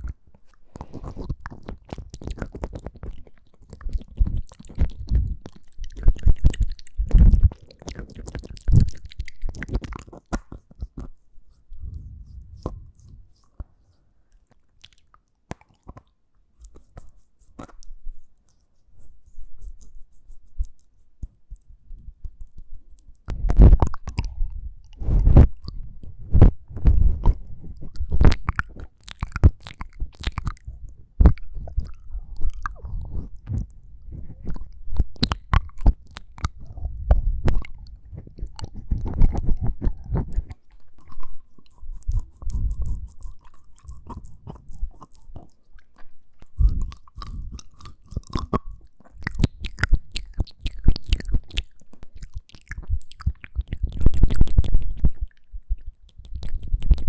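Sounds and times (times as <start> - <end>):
mouth clicks and smacks: 0.0 - 57.0.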